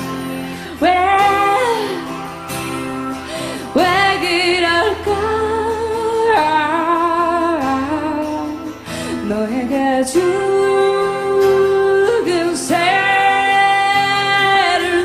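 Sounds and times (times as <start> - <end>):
acoustic guitar: 0.0 - 15.0
woman singing with vibrato: 0.0 - 15.0.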